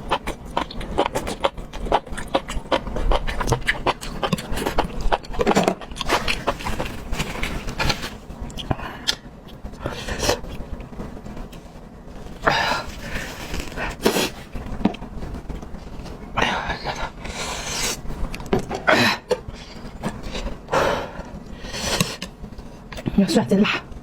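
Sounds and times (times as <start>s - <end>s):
person chewing crunchy food: 0.0s - 11.6s.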